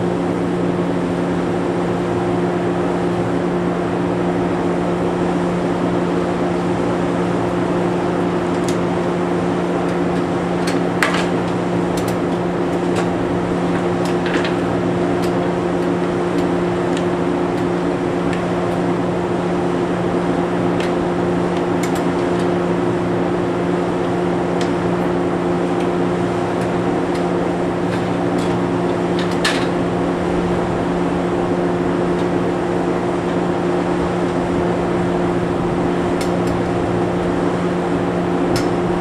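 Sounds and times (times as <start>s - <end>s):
train electrical equipment hum: 0.0s - 39.0s.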